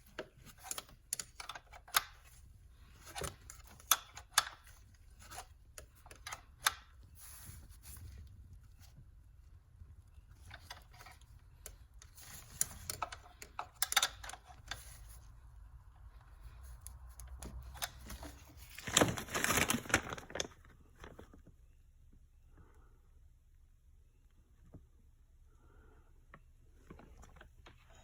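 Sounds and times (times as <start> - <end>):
metal parts and tools clinking: 12.0 - 15.0.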